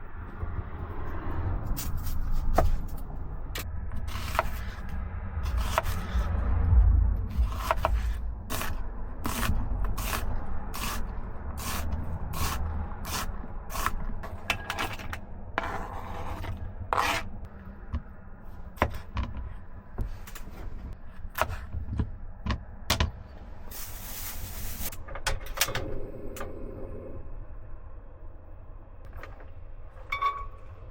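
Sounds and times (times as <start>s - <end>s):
steady low rumble: 0.0s - 30.0s
knife chopping on cutting board: 7.4s - 10.2s.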